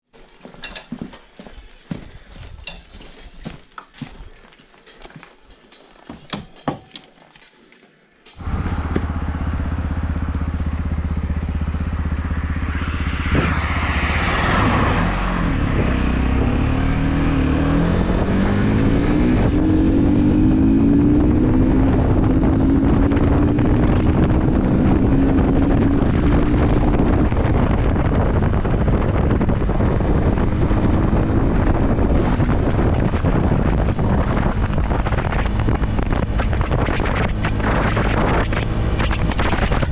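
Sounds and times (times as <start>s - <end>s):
motorcycle engine: 8.3s - 39.9s.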